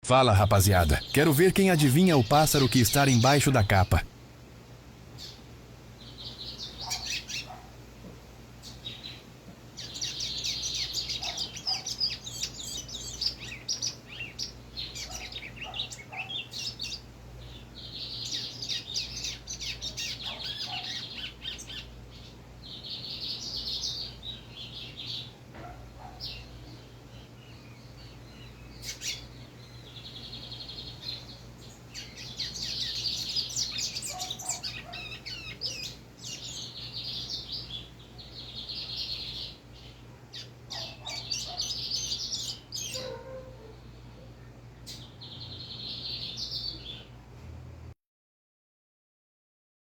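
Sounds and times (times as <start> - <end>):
bird twittering song: 5.2 - 5.4, 6.0 - 7.7, 8.6 - 43.4, 44.3 - 47.1.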